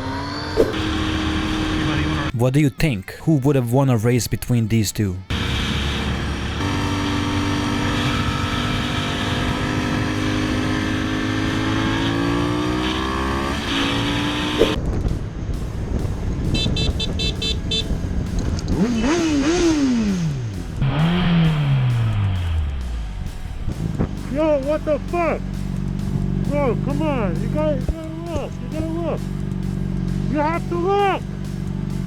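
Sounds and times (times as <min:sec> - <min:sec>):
vehicle engine accelerating hard: 0:00.0 - 0:02.3, 0:05.3 - 0:32.0
engine revving in quick blips: 0:06.6 - 0:14.8.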